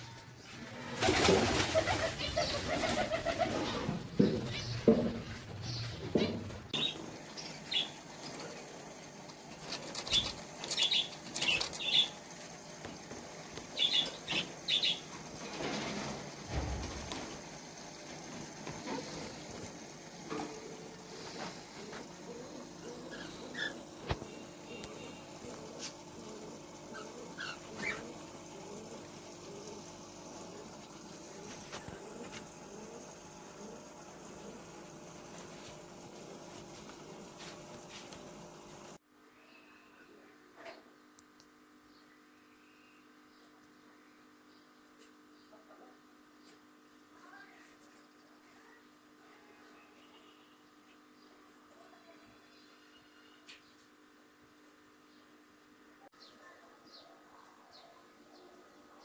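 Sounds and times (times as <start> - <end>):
birds fluttering wings: 0.0 - 39.0.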